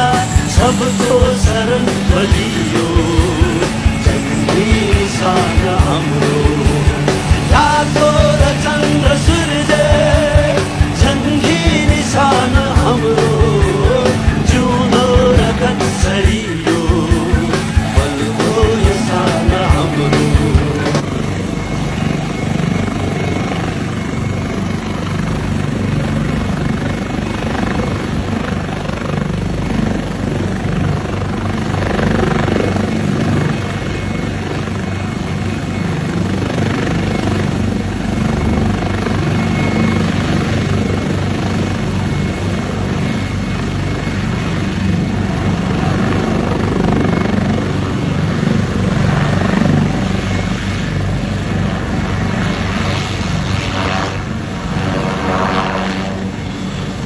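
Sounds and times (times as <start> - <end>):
helicopter rotor and turbine: 0.0 - 57.0.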